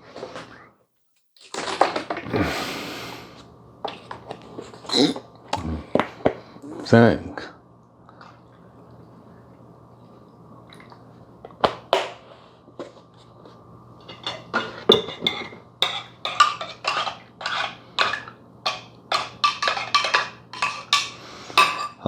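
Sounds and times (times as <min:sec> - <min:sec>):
spoon clinking in mug: 0:14.1 - 0:22.0.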